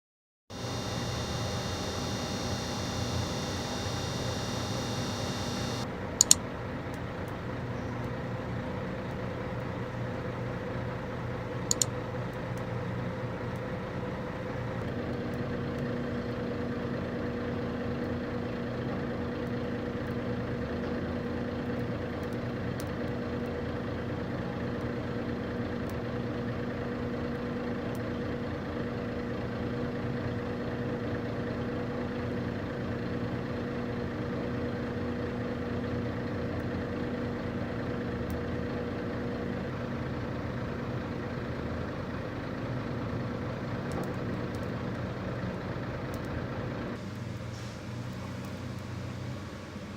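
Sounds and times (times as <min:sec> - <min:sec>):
short sharp clicks: 0:00.6 - 0:06.4, 0:11.7 - 0:11.9.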